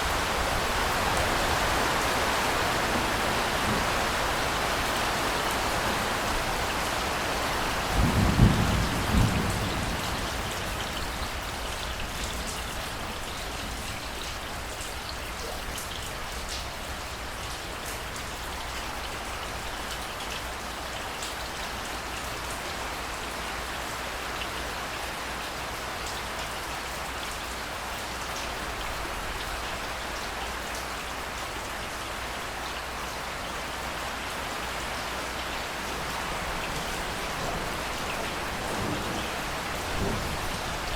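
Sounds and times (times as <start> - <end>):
steady rain: 0.0 - 40.9
low rumble of thunder: 7.6 - 12.9, 35.9 - 40.9.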